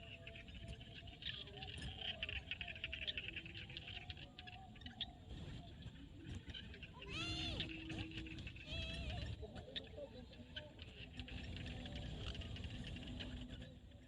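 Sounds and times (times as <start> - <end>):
frogs clicking calls: 0.0 - 14.0.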